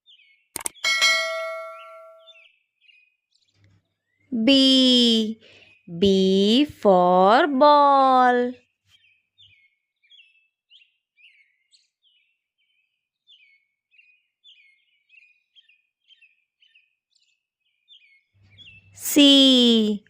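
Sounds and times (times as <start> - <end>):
faint bird chirping: 0.0 - 7.4, 8.2 - 20.0.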